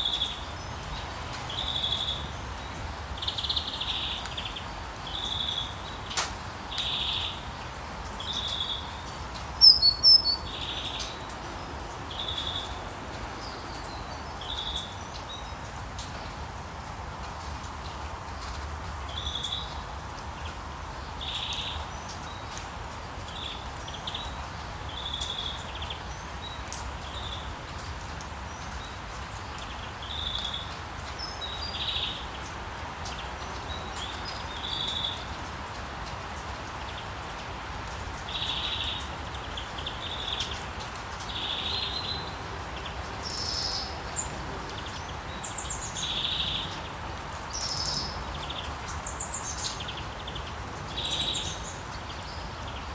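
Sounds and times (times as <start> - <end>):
high bird chirps: 9.6 - 10.5.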